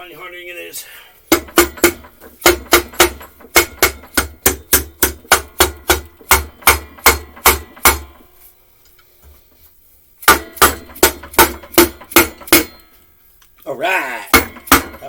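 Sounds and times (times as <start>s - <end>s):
hammer striking: 1.3s - 8.3s, 10.2s - 13.0s, 14.3s - 15.0s.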